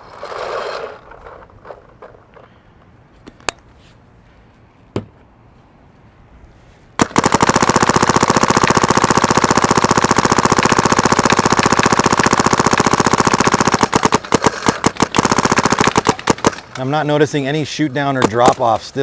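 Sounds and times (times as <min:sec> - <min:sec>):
paintball gun firing: 0:07.0 - 0:17.0, 0:18.2 - 0:18.8.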